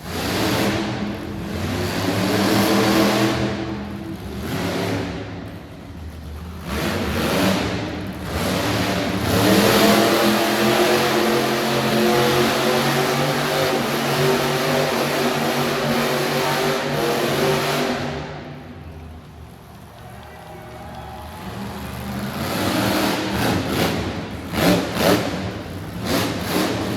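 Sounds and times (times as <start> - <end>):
truck engine revving: 0.0 - 20.0, 21.3 - 26.9.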